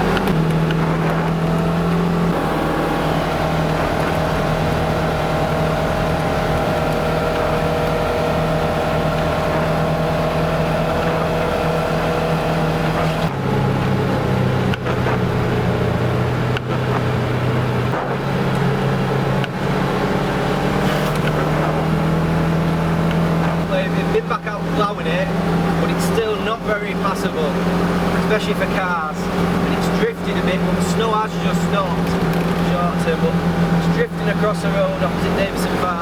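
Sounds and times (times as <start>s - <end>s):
vehicle engine running: 0.0s - 36.0s.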